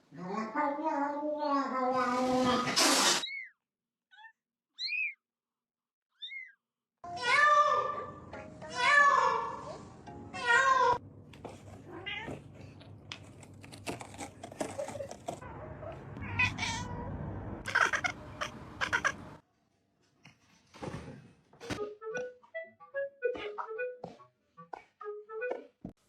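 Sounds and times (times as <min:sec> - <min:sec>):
cat meowing: 0:16.2 - 0:17.1, 0:17.7 - 0:19.2.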